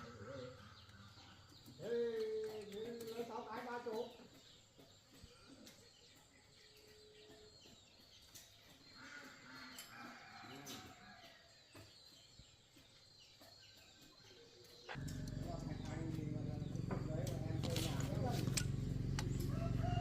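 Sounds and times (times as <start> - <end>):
faint birds chirping: 0.0 - 20.0.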